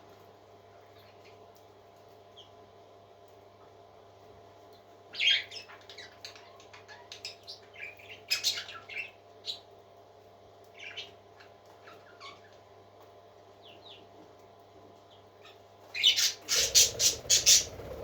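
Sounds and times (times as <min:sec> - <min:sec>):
parrot chick chirping and squawking: 0:15.4 - 0:18.0.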